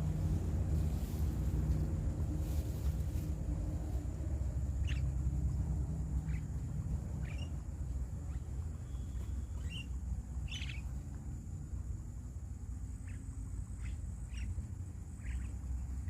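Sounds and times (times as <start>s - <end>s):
low rumble of wind: 0.0s - 16.0s
short bird calls: 8.2s - 10.9s, 13.0s - 14.6s, 15.2s - 15.6s.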